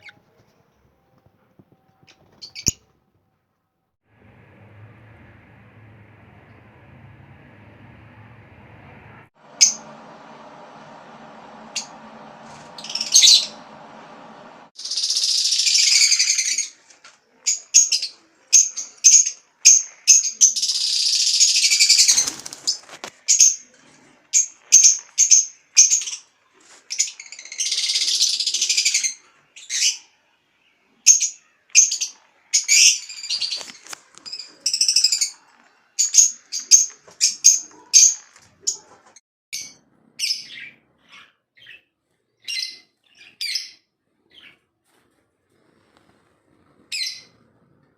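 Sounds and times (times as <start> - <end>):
lovebirds chirping and chattering: 2.0 - 2.8, 9.5 - 16.7, 39.6 - 44.6.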